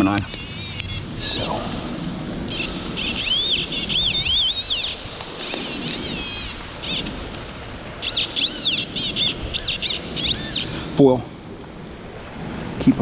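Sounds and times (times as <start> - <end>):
metal detector warbling beeps: 0.0 - 1.5
rain: 0.0 - 13.0
wind: 0.0 - 13.0.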